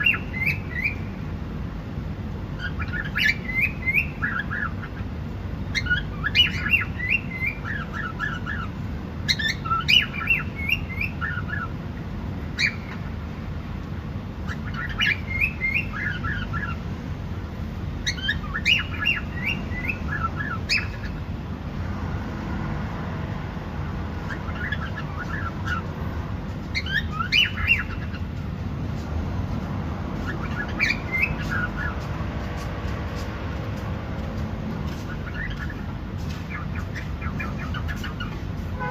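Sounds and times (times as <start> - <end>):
cockatiel chirping: 0.0 - 1.0, 2.6 - 5.0, 5.7 - 8.7, 9.3 - 11.7, 12.6 - 13.0, 14.5 - 16.8, 18.0 - 21.2, 24.3 - 25.9, 26.7 - 28.2, 30.2 - 32.0, 34.9 - 38.4.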